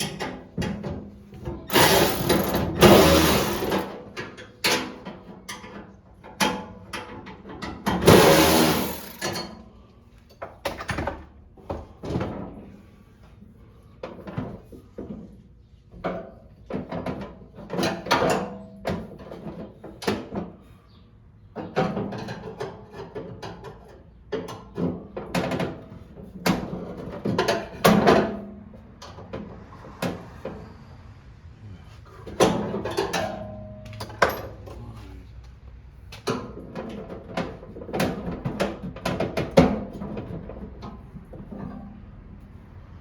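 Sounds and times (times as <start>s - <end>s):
tools and small parts rattling: 1.7s - 5.8s, 7.0s - 9.5s.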